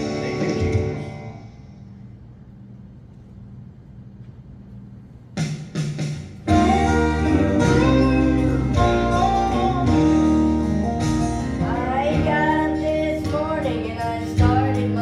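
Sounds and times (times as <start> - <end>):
guitar strums: 0.0 - 1.4, 6.5 - 15.0
live band playing: 0.0 - 1.4, 6.4 - 15.0
low hum: 6.5 - 15.0.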